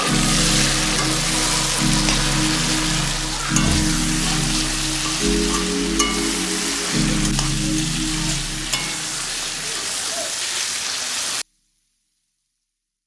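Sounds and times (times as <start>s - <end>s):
stirring clicks: 0.0s - 10.0s
food sizzling in hot oil: 0.0s - 11.4s.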